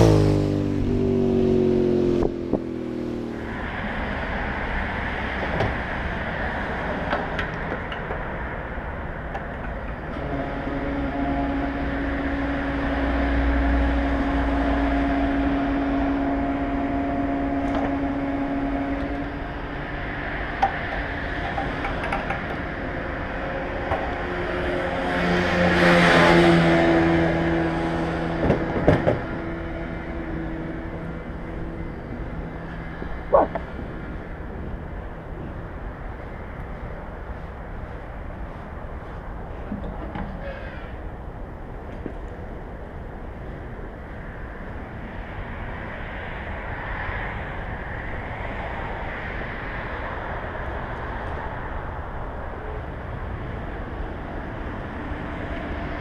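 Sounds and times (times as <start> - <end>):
vehicle engine humming: 0.0 - 56.0.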